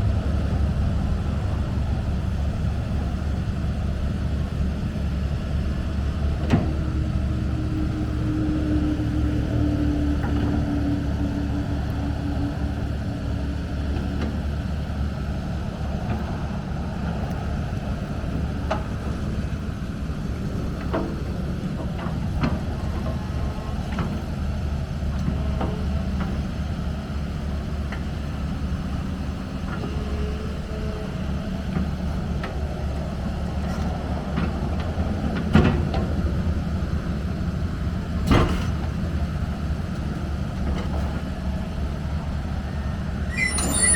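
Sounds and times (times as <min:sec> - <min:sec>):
excavator diesel engine droning: 0:00.0 - 0:38.2, 0:38.8 - 0:43.9
hydraulic whine: 0:43.2 - 0:43.9.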